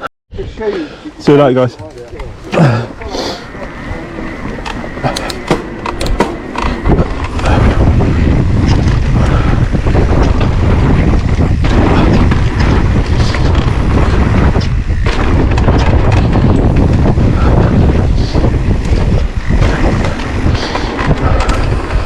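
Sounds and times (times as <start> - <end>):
wind buffeting microphone: 0.3 - 22.0
mountain bike rattling on trail: 1.3 - 22.0.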